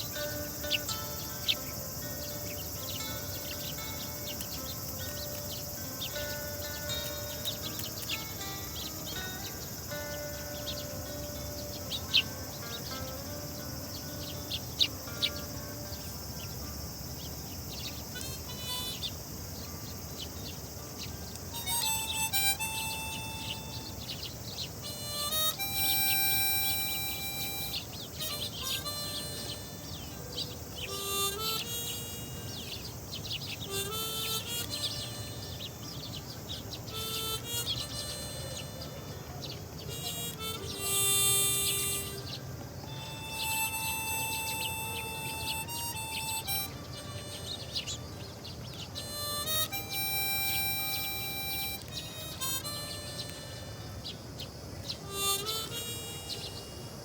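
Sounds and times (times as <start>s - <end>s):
background music: 0.0s - 19.1s, 39.9s - 48.0s
sparrows chirping: 0.0s - 57.0s.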